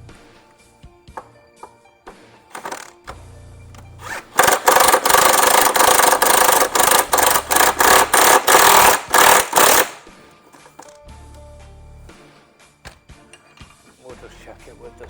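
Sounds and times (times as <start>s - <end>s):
impact wrench hammering: 1.1s - 11.0s.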